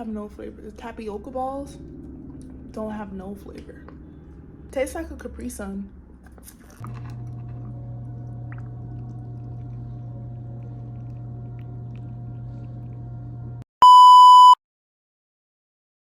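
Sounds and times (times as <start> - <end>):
low electrical hum: 0.0 - 13.6
high electronic beep: 13.8 - 14.6.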